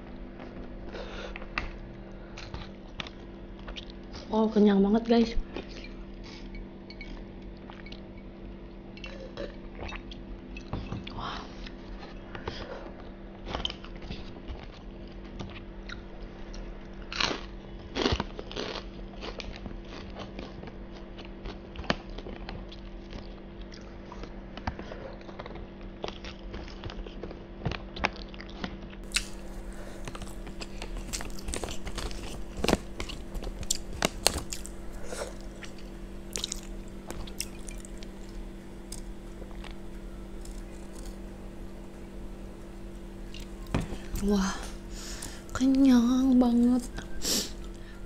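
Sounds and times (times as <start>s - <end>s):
chewing rice: 0.2s - 4.3s, 5.4s - 48.0s
paper wrapper crinkling: 29.2s - 45.5s.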